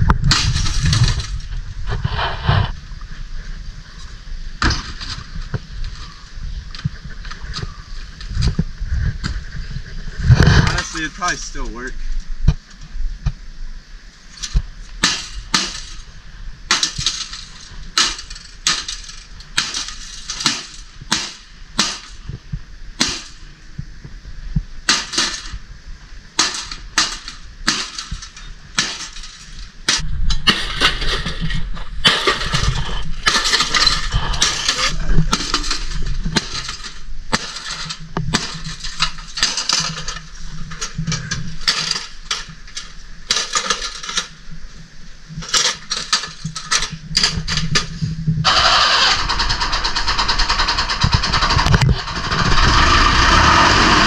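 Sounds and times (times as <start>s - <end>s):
crashing and rattling: 0.0s - 2.8s, 4.6s - 6.2s, 14.3s - 22.3s, 24.9s - 25.6s, 26.4s - 44.4s, 45.4s - 54.0s.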